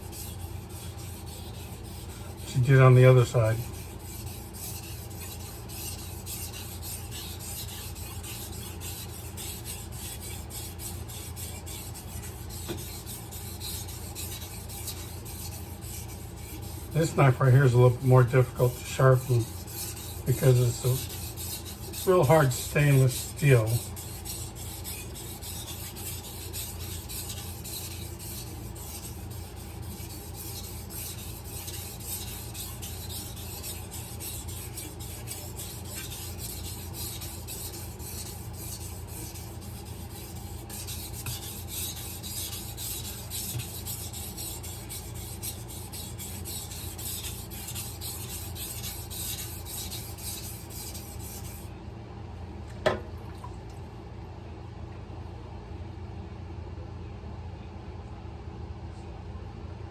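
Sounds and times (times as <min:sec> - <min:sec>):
knife scraping on whetstone: 0:00.0 - 0:51.7
brief knock: 0:52.8 - 0:53.1.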